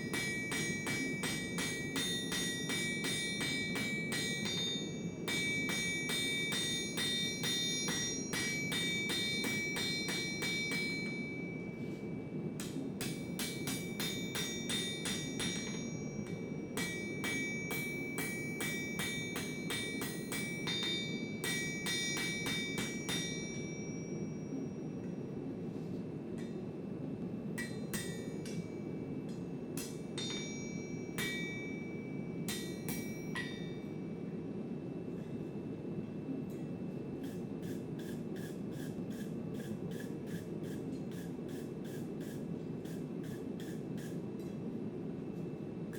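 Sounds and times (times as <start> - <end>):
hammer striking anvil: 0.0 - 24.9, 27.6 - 34.0.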